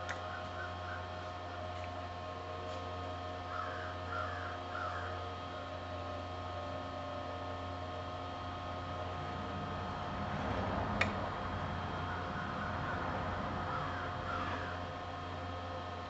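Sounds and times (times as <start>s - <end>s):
steady machine hum: 0.0s - 16.0s
crow cawing: 0.1s - 1.6s, 3.4s - 5.3s, 11.9s - 15.1s.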